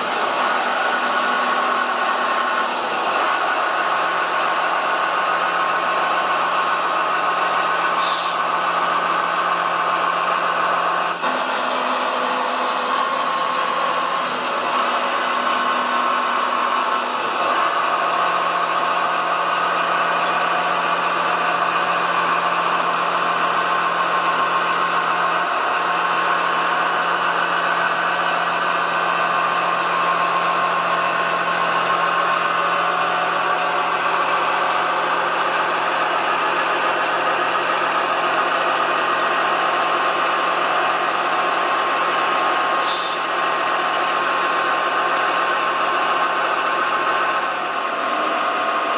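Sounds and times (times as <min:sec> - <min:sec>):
brief high hiss: 0:08.0 - 0:08.4, 0:42.8 - 0:43.2.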